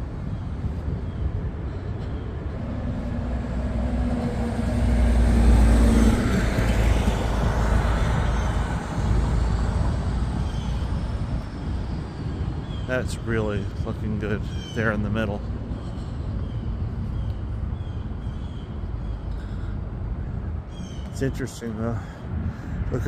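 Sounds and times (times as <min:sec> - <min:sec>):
vehicle engine hum passing: 0:00.0 - 0:21.4
low road rumble: 0:00.0 - 0:23.0.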